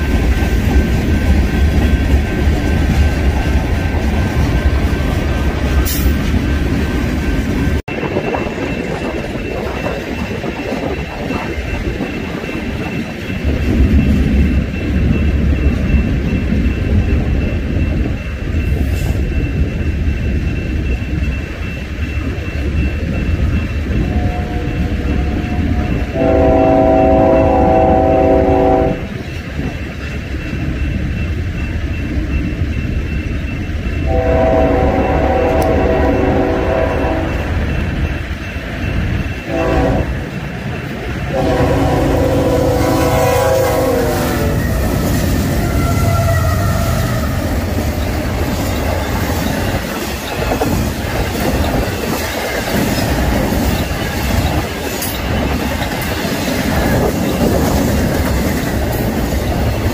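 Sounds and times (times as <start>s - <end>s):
freight train rumbling past: 0.0s - 59.9s
diesel locomotive horn: 24.0s - 29.1s, 34.1s - 37.6s, 39.5s - 40.3s, 41.3s - 44.9s, 45.5s - 47.5s.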